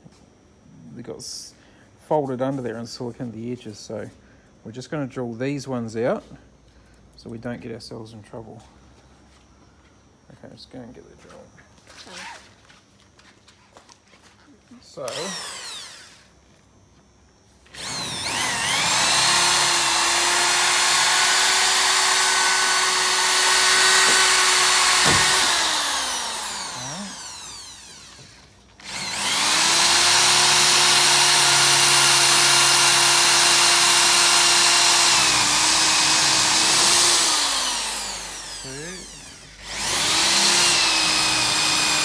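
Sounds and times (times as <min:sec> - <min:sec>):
electric drill whining: 0:15.0 - 0:16.3, 0:17.7 - 0:42.0.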